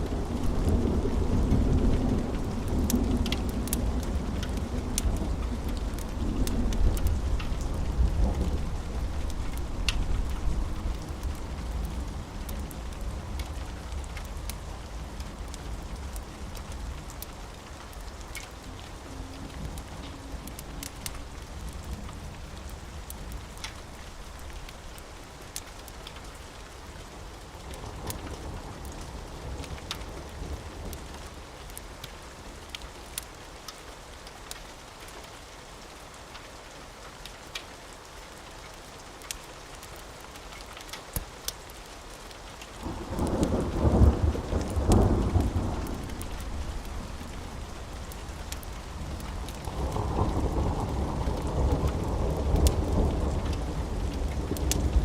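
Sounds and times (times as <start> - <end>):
steady rain: 0.0 - 55.0
low roll of thunder: 42.8 - 55.0.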